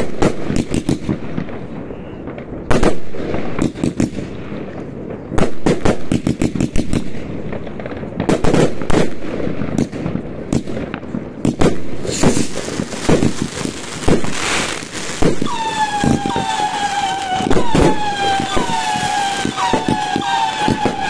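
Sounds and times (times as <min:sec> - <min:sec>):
fireworks and firecrackers banging: 0:00.0 - 0:21.0
pitched tone dipping in pitch: 0:15.4 - 0:21.0.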